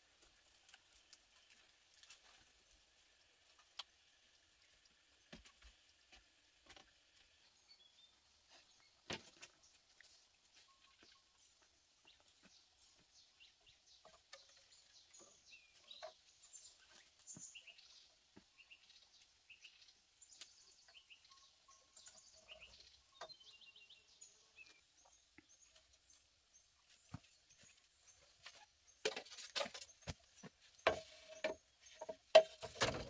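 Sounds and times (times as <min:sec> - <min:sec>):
birds chirping: 0:06.6 - 0:33.0.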